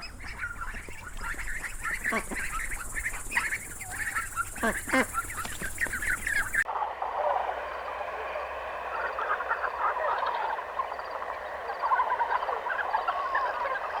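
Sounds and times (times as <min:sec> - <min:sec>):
chorus of animal calls: 0:00.0 - 0:14.0.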